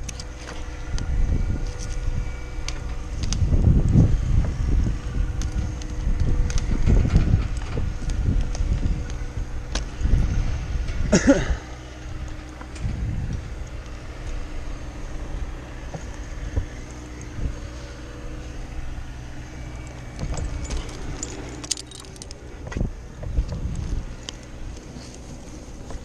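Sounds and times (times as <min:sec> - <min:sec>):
engine running: 0:00.0 - 0:26.0
metal gear clinking: 0:19.9 - 0:22.5.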